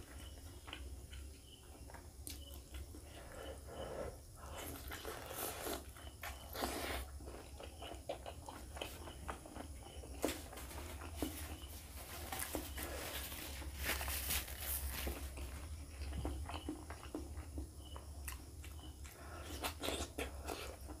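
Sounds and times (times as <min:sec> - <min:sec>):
wet chewing and lip smacks: 0:15.4 - 0:21.0.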